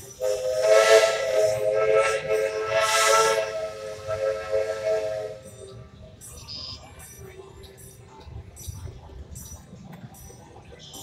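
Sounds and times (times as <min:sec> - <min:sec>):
steam hissing: 0:00.0 - 0:05.7.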